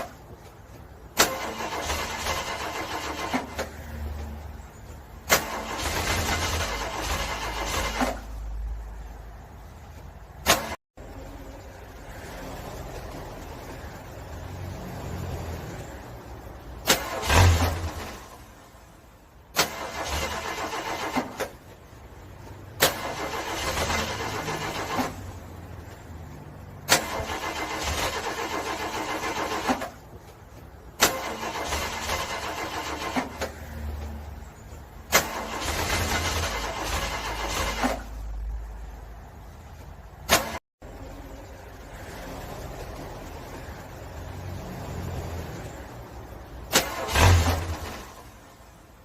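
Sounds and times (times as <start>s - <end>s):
car starter cranking engine: 1.1s - 3.9s, 5.0s - 8.5s, 16.8s - 18.5s, 19.5s - 22.0s, 22.8s - 25.4s, 26.8s - 30.2s, 31.0s - 33.6s, 35.0s - 38.4s, 46.6s - 48.4s.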